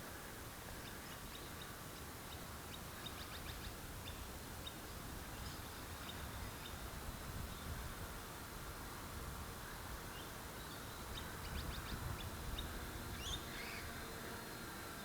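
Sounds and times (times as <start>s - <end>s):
wind rumble on microphone: 5.0s - 10.1s, 10.9s - 14.2s.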